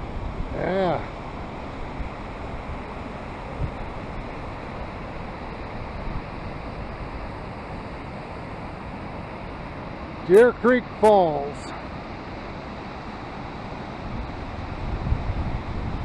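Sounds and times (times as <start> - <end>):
waterfall rushing: 8.2 - 11.9.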